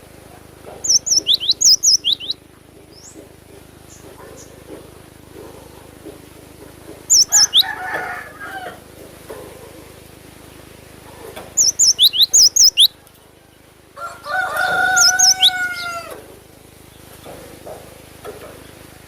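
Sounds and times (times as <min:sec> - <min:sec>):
tit calling: 0:00.4 - 0:04.9, 0:07.0 - 0:07.8, 0:11.5 - 0:12.9, 0:14.9 - 0:16.1
rooster crowing: 0:07.2 - 0:09.0, 0:13.0 - 0:16.3.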